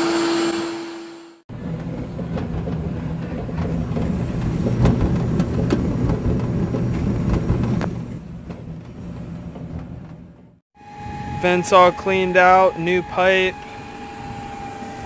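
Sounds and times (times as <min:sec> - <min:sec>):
vacuum humming: 0:00.0 - 0:01.4, 0:10.8 - 0:15.0.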